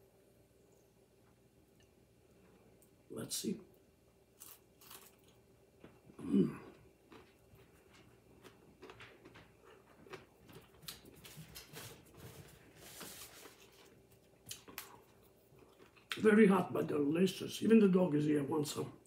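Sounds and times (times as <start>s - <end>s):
chewing crisp food: 4.4s - 12.0s, 13.1s - 16.2s.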